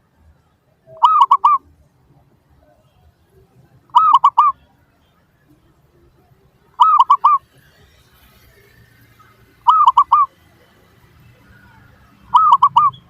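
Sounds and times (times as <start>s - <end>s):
dove cooing: 0.9s - 1.6s, 3.9s - 4.6s, 6.8s - 7.6s, 9.4s - 10.5s, 12.2s - 13.0s.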